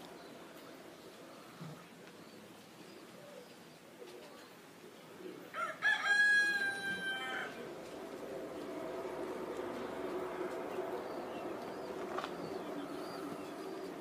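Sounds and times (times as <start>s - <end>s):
faint pigeon cooing: 0.0s - 14.0s
rooster crowing: 5.5s - 7.8s.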